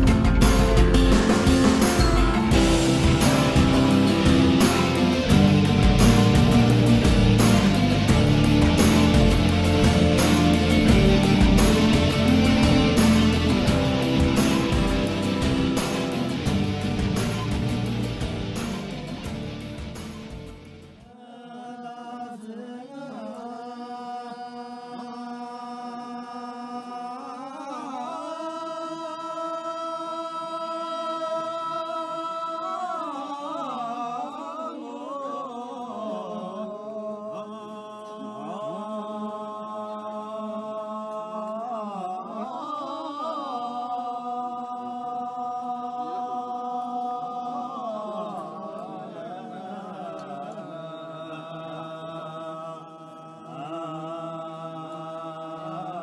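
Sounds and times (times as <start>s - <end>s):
low drone: 0.0s - 21.0s
chant-like vocal line: 0.0s - 56.0s.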